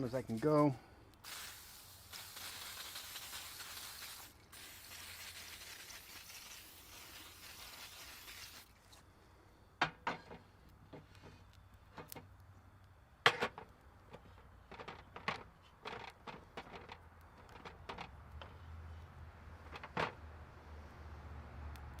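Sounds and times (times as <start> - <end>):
sizzling on hot waffle iron: 1.2 - 9.0
sharp clicks and knocks: 9.8 - 12.3, 13.2 - 18.6.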